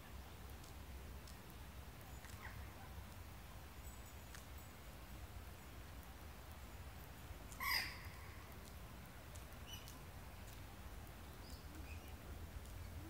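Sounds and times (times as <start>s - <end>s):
faint bird chirps: 9.6s - 10.0s, 11.2s - 13.0s.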